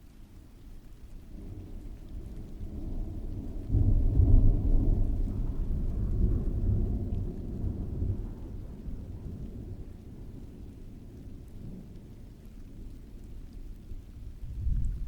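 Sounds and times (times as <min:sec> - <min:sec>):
steady rain: 0:00.0 - 0:15.0
thunder rumbling: 0:01.3 - 0:12.2, 0:14.0 - 0:15.0.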